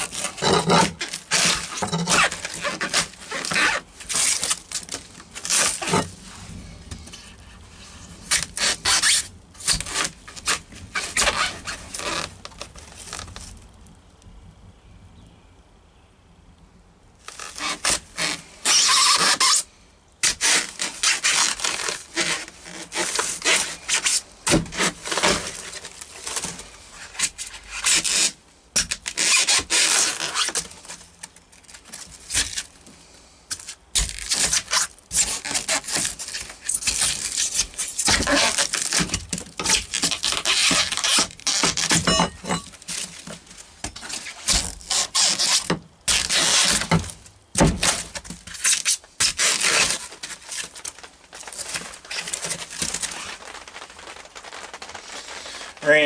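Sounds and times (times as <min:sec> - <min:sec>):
hand tool rasping strokes: 0:00.0 - 0:04.5.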